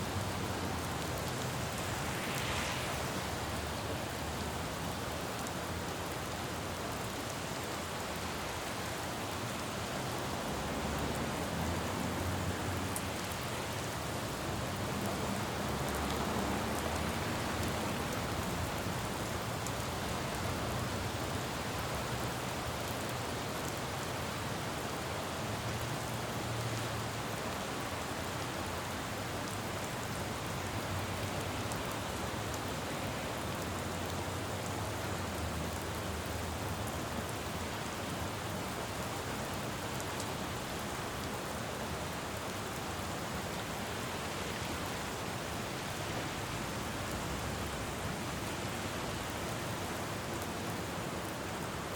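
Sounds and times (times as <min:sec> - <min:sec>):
rain falling on a road: 0:00.0 - 0:51.9
traffic rumble: 0:00.1 - 0:05.5.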